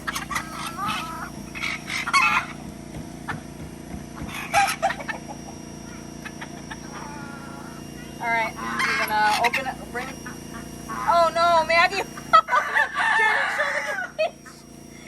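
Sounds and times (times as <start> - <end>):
fowl squawking and clucking: 0.0 - 2.6, 4.2 - 5.4, 6.2 - 14.3
steady low hum: 0.0 - 15.0.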